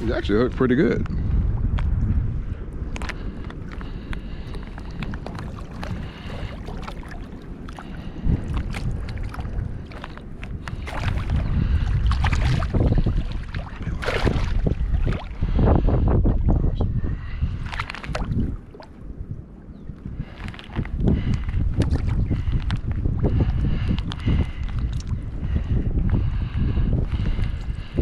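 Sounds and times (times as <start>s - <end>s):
wind buffeting microphone: 0.0s - 28.0s
water sloshing and splashing: 3.7s - 15.6s, 17.4s - 19.4s, 20.2s - 25.2s.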